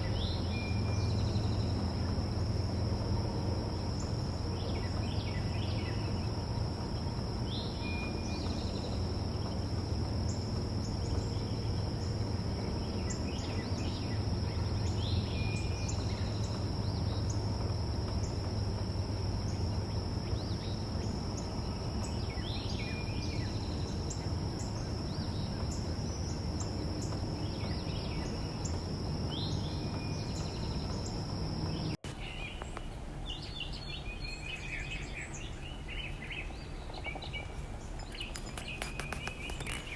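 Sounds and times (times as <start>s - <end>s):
low background rumble: 0.0s - 39.9s
bird chirps: 19.4s - 39.9s.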